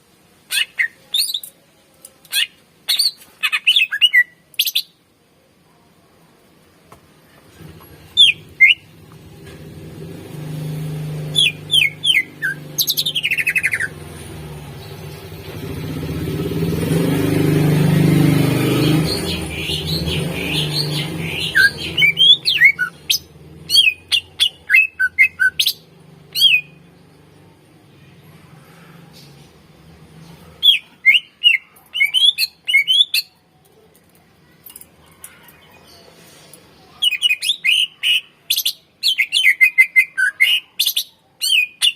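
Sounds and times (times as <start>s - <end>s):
bird singing whistled notes: 11.3s - 14.0s, 18.8s - 26.8s.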